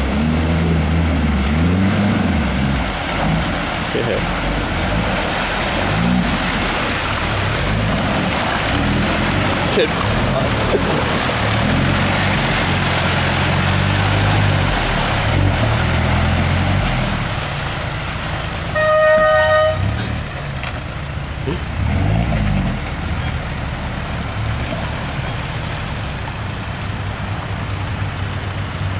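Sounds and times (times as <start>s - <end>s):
diesel engine revving: 0.0s - 26.4s
car horn toot: 18.7s - 20.3s.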